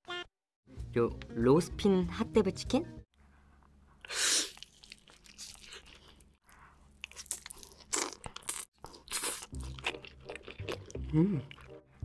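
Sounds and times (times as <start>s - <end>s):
crunchy chewing: 4.4s - 11.8s
biting crunch: 7.1s - 11.7s.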